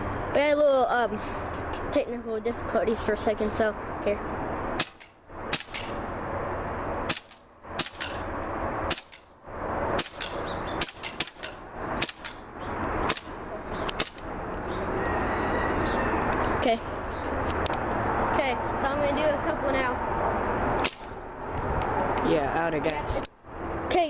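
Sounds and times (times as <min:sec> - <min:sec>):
airsoft pistol shots: 0:04.8 - 0:06.0, 0:07.1 - 0:08.3, 0:08.9 - 0:09.3, 0:10.0 - 0:12.4, 0:13.0 - 0:14.3, 0:20.8 - 0:21.1.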